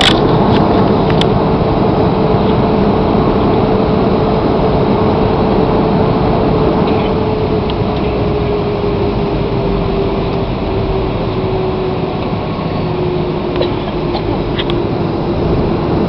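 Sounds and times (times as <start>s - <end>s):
humming engine tone: 0.0s - 16.0s
jet engine and airflow rush: 0.0s - 16.0s.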